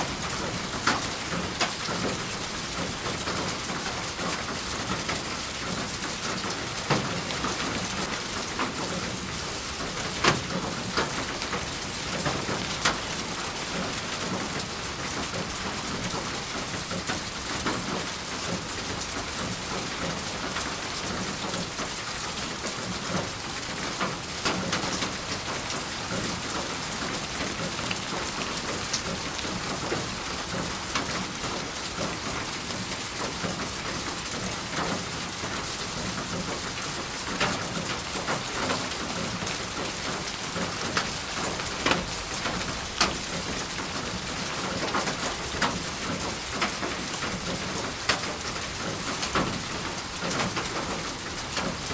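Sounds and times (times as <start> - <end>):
rain falling on a surface: 0.0 - 51.9.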